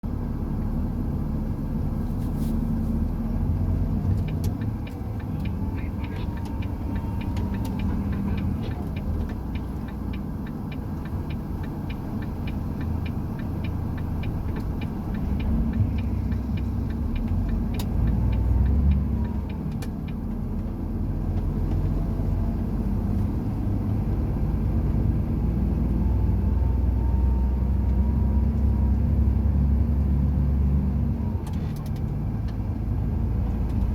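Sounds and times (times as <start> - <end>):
heavy truck engine rumble: 0.0 - 33.9
rapid light ticks: 3.8 - 22.0.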